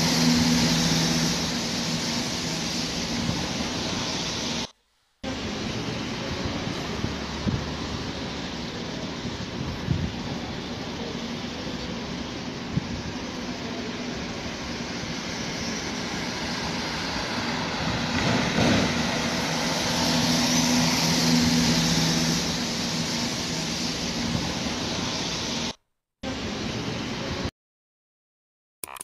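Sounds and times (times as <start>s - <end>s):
heavy rain hiss: 0.0s - 27.4s
vehicle passing on wet road: 16.5s - 24.2s.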